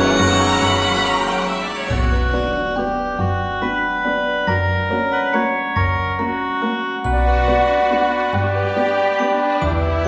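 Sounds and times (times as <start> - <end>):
light tinkling high part: 0.0 - 3.6.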